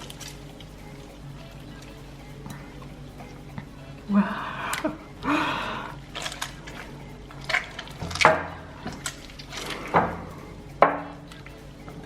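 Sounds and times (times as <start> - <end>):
sharp wet snaps: 4.6 - 11.6
slime squelching and popping: 6.1 - 10.2.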